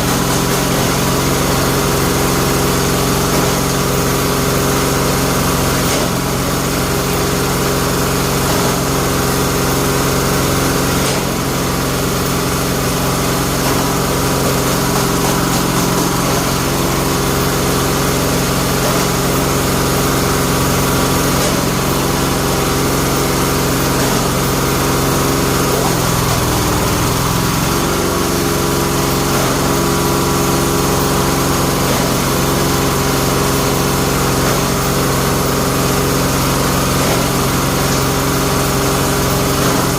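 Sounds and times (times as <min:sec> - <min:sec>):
machine engine running: 0:00.0 - 0:39.9.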